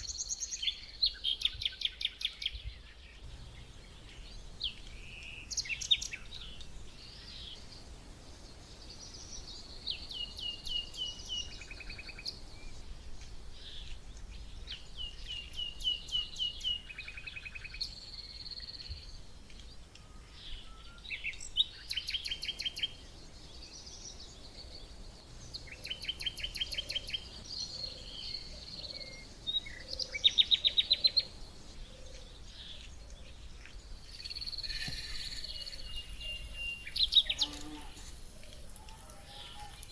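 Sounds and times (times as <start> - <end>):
songbirds singing and chirping: 0.0 - 39.9
rapid bird trills: 34.1 - 39.9.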